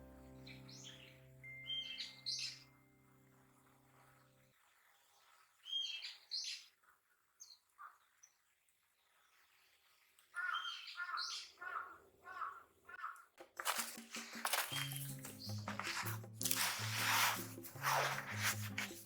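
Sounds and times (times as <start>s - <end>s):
wild birds calling: 10.3s - 13.3s.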